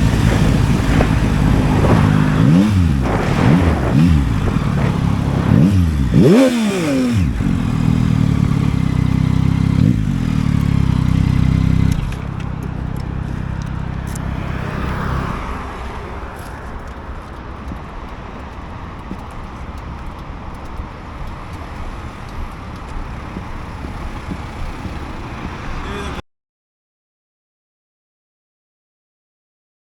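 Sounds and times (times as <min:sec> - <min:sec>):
motorcycle engine running: 0:00.0 - 0:19.6
road and traffic noise: 0:00.0 - 0:26.2
light clicks: 0:11.9 - 0:23.6.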